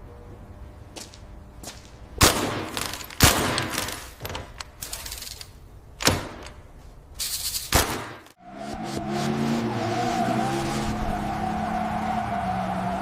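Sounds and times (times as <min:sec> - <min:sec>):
loud sharp bangs: 0:02.2 - 0:03.9, 0:07.7 - 0:08.3.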